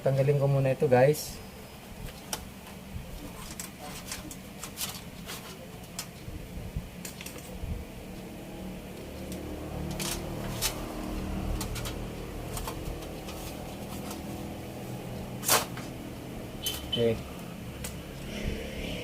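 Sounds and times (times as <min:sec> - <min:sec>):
low steady hum: 0:00.0 - 0:19.0
small clicks and handling noises: 0:07.0 - 0:07.6, 0:09.0 - 0:10.9, 0:11.5 - 0:14.3.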